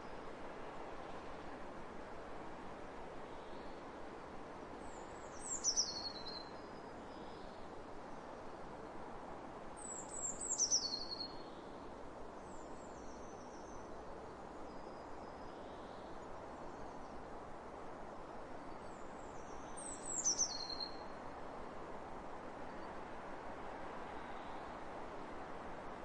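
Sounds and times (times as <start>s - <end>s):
wind across open fields: 0.0s - 26.0s
songbird singing: 4.8s - 7.6s, 9.8s - 11.7s, 18.8s - 21.2s.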